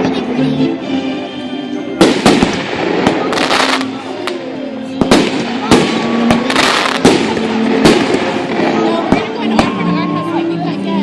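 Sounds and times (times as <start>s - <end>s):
background music: 0.0s - 11.0s
fireworks bangs: 2.0s - 4.3s, 5.0s - 9.9s
fireworks crackling: 2.0s - 10.4s.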